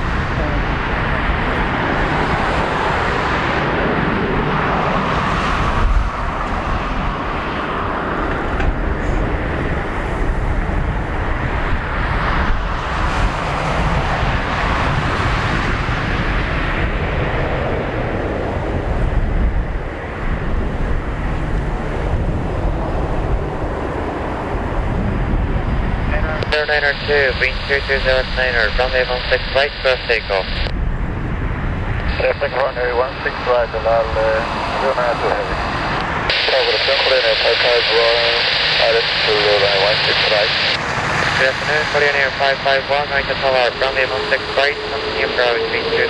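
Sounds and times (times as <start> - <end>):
jet airliner engines rushing: 0.0 - 46.0.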